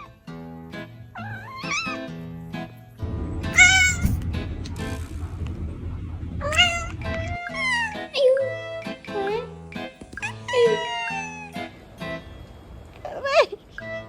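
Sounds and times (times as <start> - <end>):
background music: 0.0 - 12.6
cat meowing: 1.2 - 2.1, 10.2 - 11.7.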